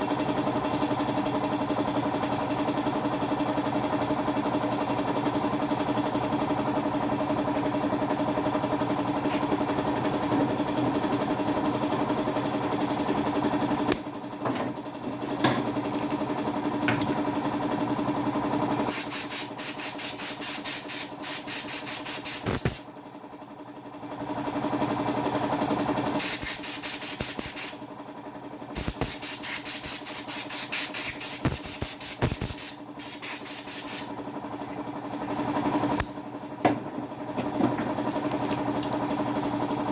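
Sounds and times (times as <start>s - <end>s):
small motor humming: 18.9s - 22.8s, 28.7s - 34.2s.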